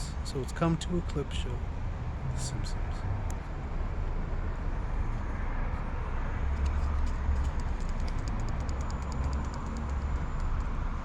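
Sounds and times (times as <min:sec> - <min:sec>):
urban background rumble and hiss: 0:00.0 - 0:11.0
faint regular ticking: 0:06.6 - 0:10.9.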